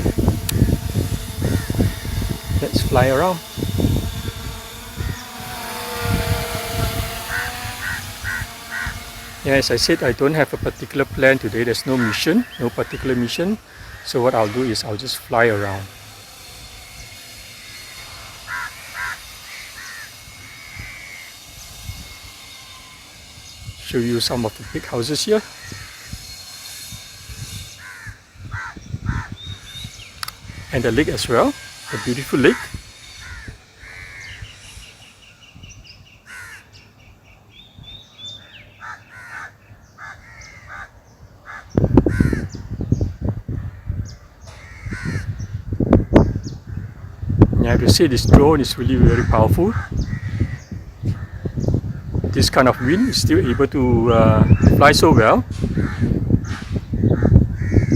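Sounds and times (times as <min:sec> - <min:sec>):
low wind noise: 0:00.0 - 0:57.9
crow-like bird calls: 0:00.5 - 0:02.3, 0:07.2 - 0:10.4, 0:11.3 - 0:14.8, 0:17.7 - 0:23.6, 0:24.5 - 0:30.9, 0:31.5 - 0:35.5, 0:36.2 - 0:36.8, 0:38.2 - 0:42.9, 0:43.5 - 0:47.2, 0:49.0 - 0:53.8, 0:55.6 - 0:57.9.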